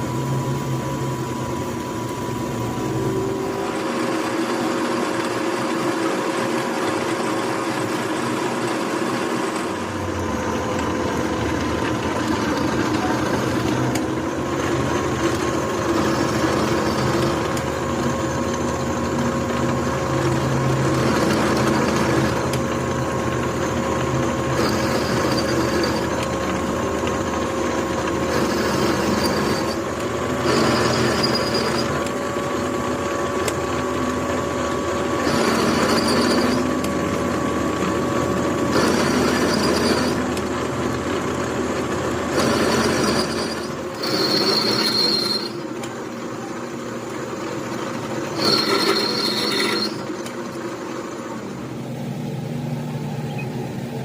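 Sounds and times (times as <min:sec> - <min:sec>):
workshop machinery hum: 0:00.0 - 0:54.0
metal on metal squeal: 0:30.5 - 0:32.0, 0:35.4 - 0:36.7, 0:42.8 - 0:45.7, 0:48.4 - 0:50.3.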